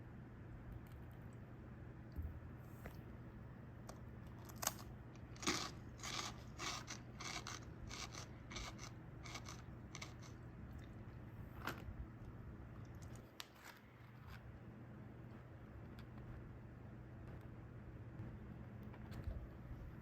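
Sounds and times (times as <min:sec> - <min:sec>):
crunching crisp snack sticks: 0:04.4 - 0:10.4.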